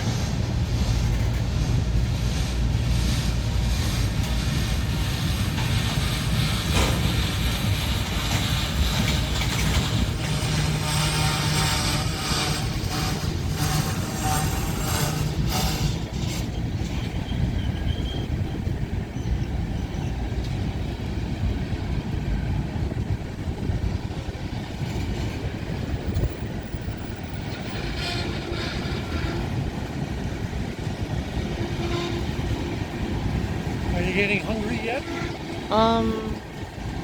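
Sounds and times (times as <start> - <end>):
wheel squeal: 0.0 - 20.1
train wheels rumbling on rails: 0.0 - 37.0.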